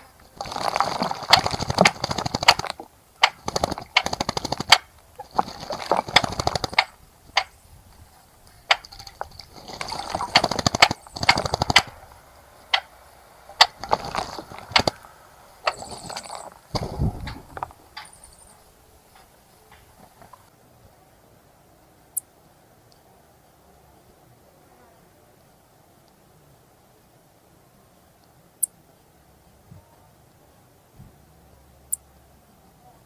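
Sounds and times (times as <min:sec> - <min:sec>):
sharp flicks and clicks: 0:00.0 - 0:20.4
bird splashing water: 0:00.0 - 0:20.5.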